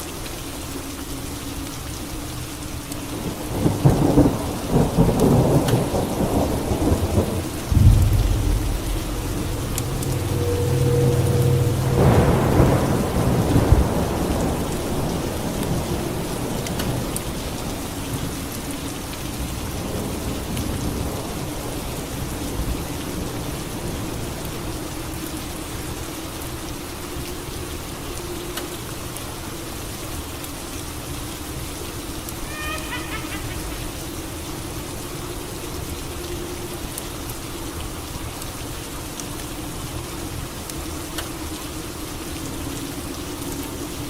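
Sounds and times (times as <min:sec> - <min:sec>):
steady rain falling: 0:00.0 - 0:44.0
thunder rumbling: 0:03.3 - 0:17.0.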